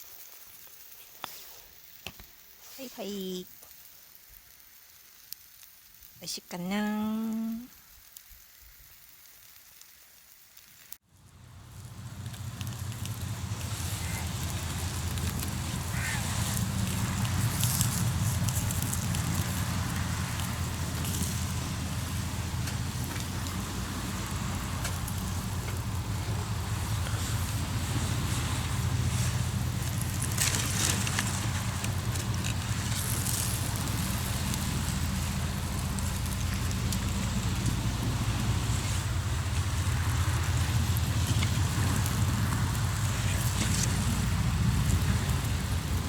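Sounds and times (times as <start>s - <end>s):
campfire crackling and popping: 0.2s - 46.0s
low steady hum: 11.1s - 46.0s.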